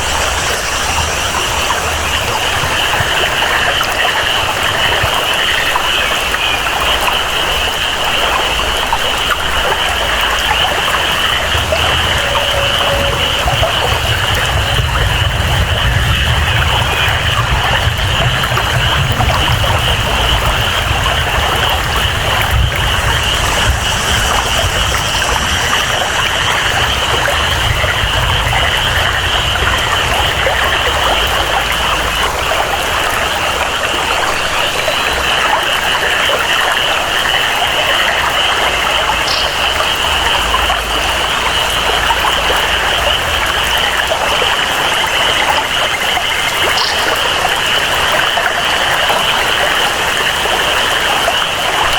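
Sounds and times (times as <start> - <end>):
low rumble: 0.0 - 4.0, 7.5 - 34.5
flowing water: 0.0 - 51.9
frogs and insects chorus: 0.0 - 51.9
steady rain: 0.0 - 51.9.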